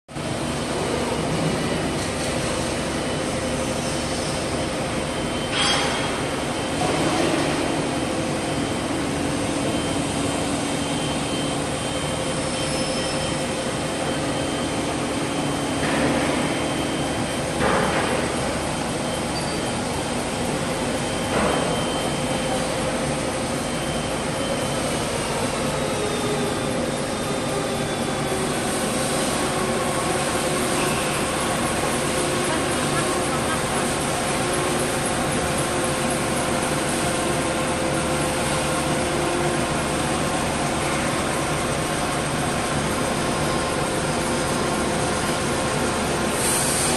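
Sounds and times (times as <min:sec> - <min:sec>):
machine drone and hum: 0:00.1 - 0:46.9.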